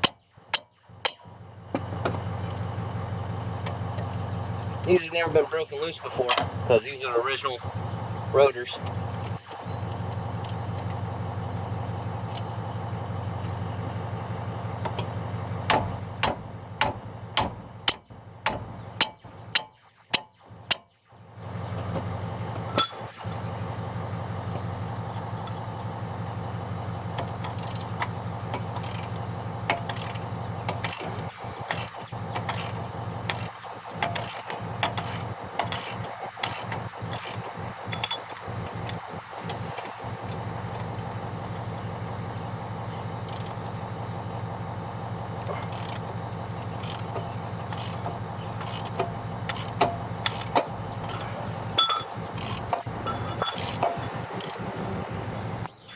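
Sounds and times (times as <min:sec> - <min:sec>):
low mechanical hum: 0:00.0 - 0:55.9
hammer striking metal rotor: 0:15.7 - 0:20.9, 0:22.7 - 0:23.1, 0:28.5 - 0:39.0, 0:46.8 - 0:54.6
light metal clicks and taps: 0:27.2 - 0:40.9, 0:43.2 - 0:43.8, 0:46.8 - 0:54.6.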